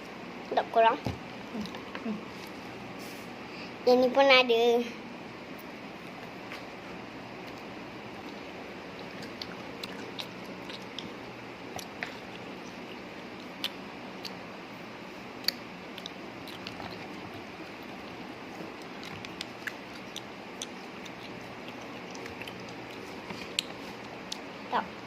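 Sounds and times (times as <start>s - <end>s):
steady background hiss: 0.0s - 25.0s
quiet chewing: 5.6s - 14.5s, 15.4s - 24.5s.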